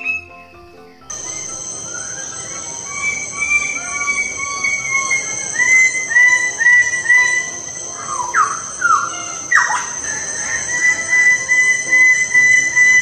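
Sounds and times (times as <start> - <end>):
bird calls repeated pitched notes: 0.0 - 13.0
high steady hiss: 0.0 - 13.0
bird call sliding down: 1.2 - 13.0.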